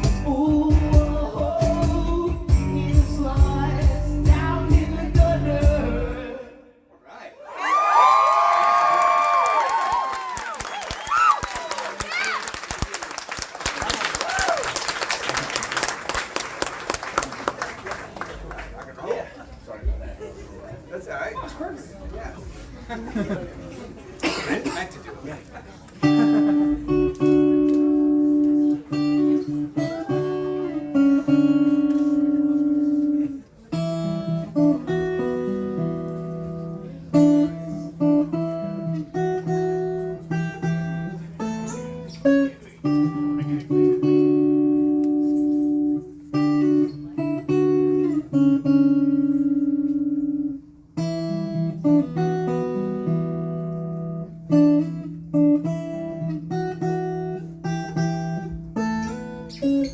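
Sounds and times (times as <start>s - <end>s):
acoustic guitar chords: 0.0s - 6.9s, 26.0s - 59.9s.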